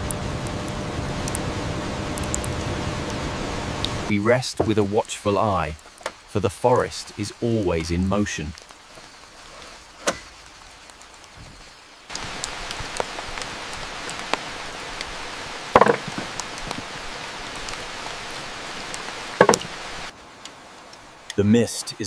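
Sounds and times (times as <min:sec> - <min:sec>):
rain hiss: 0:00.0 - 0:22.0
clattering knocks: 0:15.8 - 0:16.3, 0:19.4 - 0:19.7.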